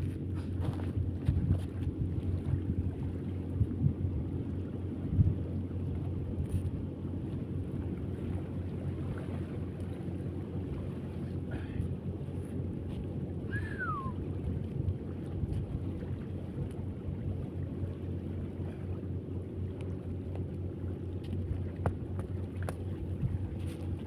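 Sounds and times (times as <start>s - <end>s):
motor droning: 0.0s - 24.0s
short falling whistle: 13.5s - 14.2s.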